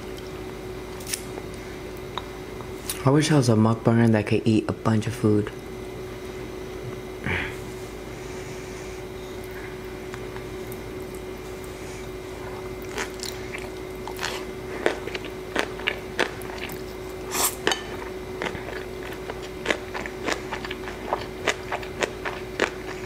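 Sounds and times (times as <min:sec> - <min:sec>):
faint steady hum: 0:00.0 - 0:23.0
person chewing noodles: 0:10.6 - 0:23.0.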